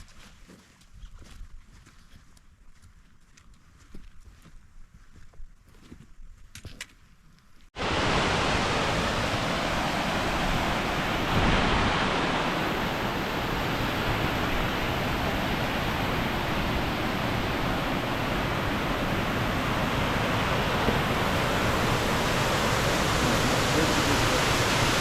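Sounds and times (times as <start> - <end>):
waterfall rushing: 7.8 - 25.0.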